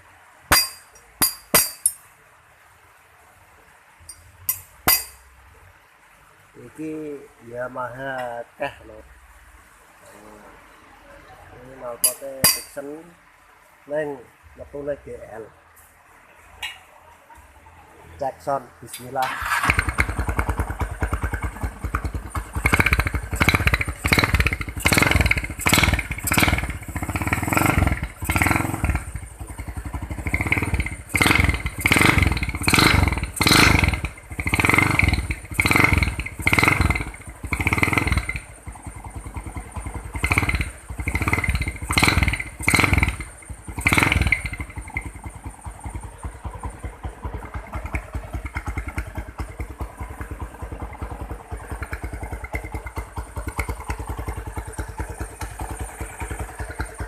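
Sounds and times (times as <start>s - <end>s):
motorcycle engine idling: 19.2s - 57.0s
motorcycle engine revving: 19.2s - 57.0s.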